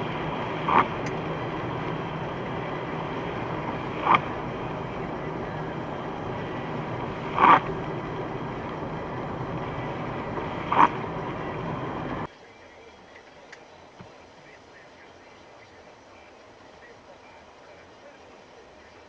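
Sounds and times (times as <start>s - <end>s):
steady car hum: 0.0s - 12.3s
wiper blades squeaking on glass: 0.0s - 12.3s.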